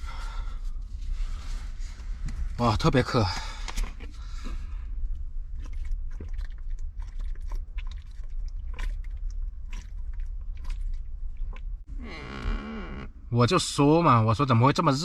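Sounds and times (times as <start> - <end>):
low rumble: 0.0 - 13.8
person drinking and swallowing: 3.2 - 13.0.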